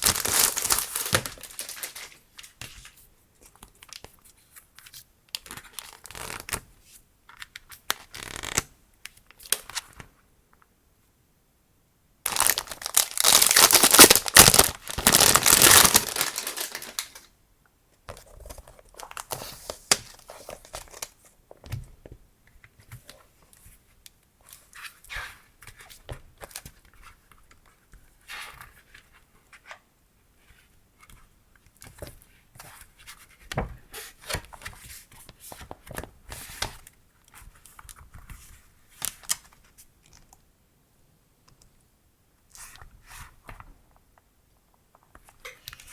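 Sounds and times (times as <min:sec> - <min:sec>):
packaging ripping open: 0:00.0 - 0:02.2, 0:12.3 - 0:17.3
packaging crinkling and rustling: 0:00.0 - 0:03.0, 0:12.3 - 0:17.3, 0:18.1 - 0:21.3.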